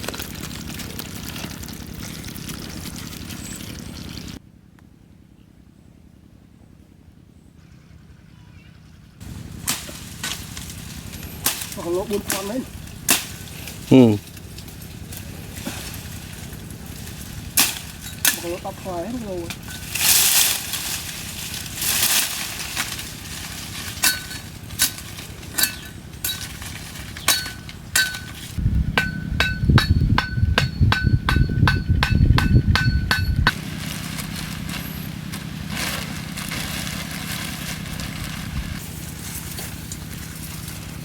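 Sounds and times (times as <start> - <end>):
heavy low thudding: 28.2 - 33.6
hard strikes on ringing object: 29.0 - 33.6.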